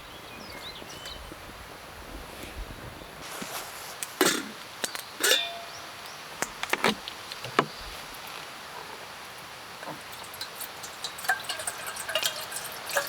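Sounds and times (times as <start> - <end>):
hard objects knocking and clinking: 9.8 - 13.0.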